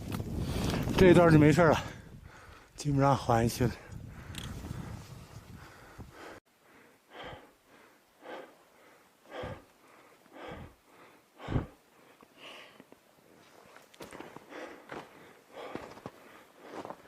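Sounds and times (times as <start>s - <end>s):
heavy rhythmic breathing: 3.8s - 13.4s, 14.0s - 17.0s.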